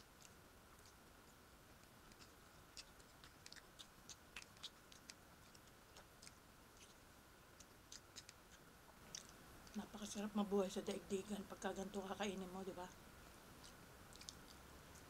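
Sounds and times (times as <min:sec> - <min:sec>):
person chewing food: 0:00.0 - 0:09.8, 0:13.4 - 0:15.0.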